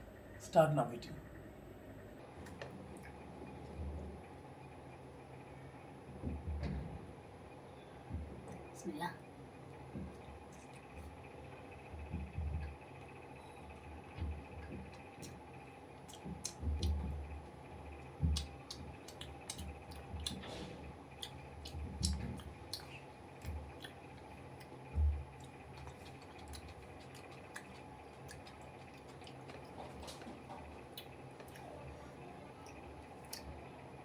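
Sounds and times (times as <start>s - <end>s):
wet chewing and mouth clicks: 14.4s - 33.6s.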